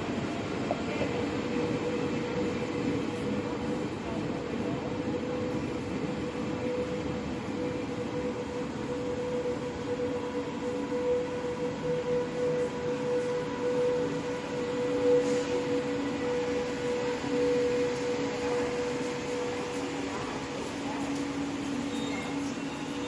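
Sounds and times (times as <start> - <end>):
train rumbling: 0.0 - 23.0.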